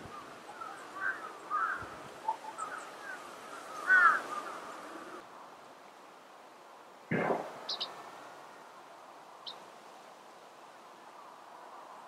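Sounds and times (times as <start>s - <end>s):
birds chirping: 0.0s - 5.2s, 7.1s - 8.2s
steady outdoor hiss: 0.0s - 12.0s.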